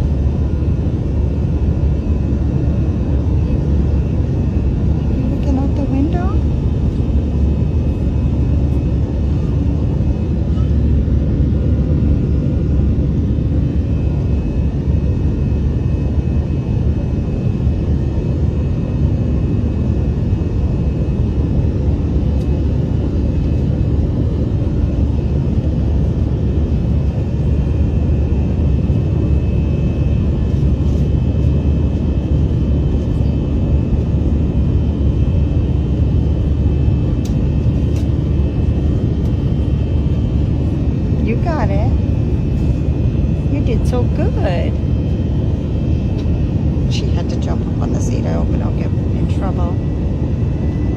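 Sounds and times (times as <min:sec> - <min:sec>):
airliner cabin engine rumble: 0:00.0 - 0:50.9.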